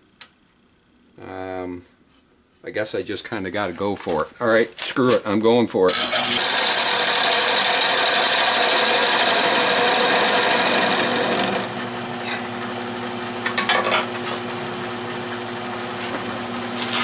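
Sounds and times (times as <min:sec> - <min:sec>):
lathe motor humming: 0:05.9 - 0:17.0
lathe tool cutting wood: 0:05.9 - 0:17.0.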